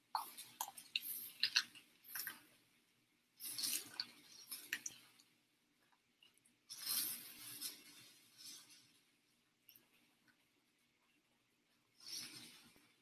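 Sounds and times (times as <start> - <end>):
wet chewing and crunching: 0.1 - 2.6, 3.4 - 5.3.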